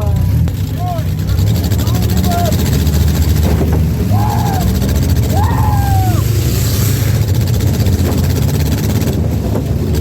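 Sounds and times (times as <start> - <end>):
car engines rumbling: 0.0 - 10.0
rising and falling call: 4.1 - 6.8.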